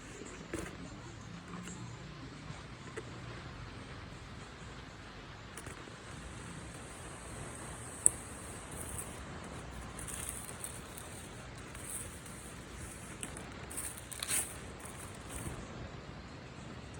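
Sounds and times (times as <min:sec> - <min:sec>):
background hiss: 0:00.0 - 0:16.9
handling rustling: 0:05.6 - 0:15.7.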